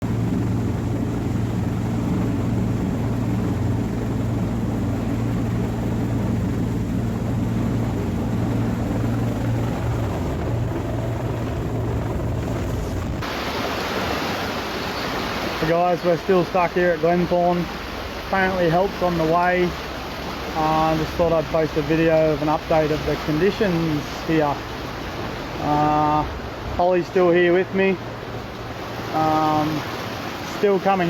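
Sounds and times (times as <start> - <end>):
steady rushing noise: 0.0 - 21.2
helicopter rotor and engine hum: 0.0 - 31.0.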